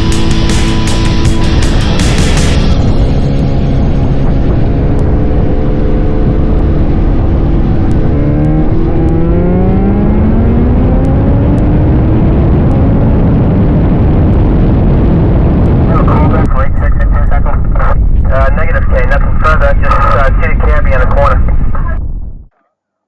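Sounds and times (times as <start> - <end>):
motorcycle engine accelerating: 0.0 - 15.9.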